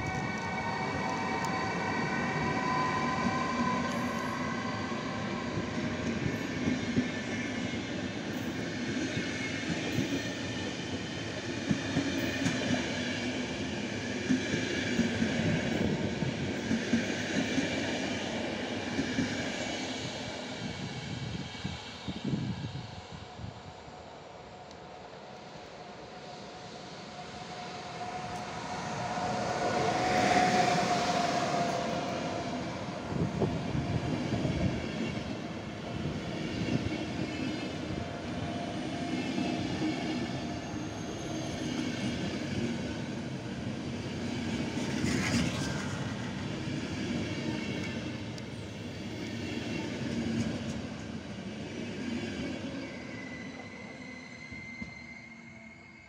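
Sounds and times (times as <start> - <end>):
electric locomotive humming: 0.0 - 56.0
train coaches rumbling past: 0.0 - 56.0
high squeal: 0.1 - 5.7, 39.0 - 42.2, 52.7 - 56.0.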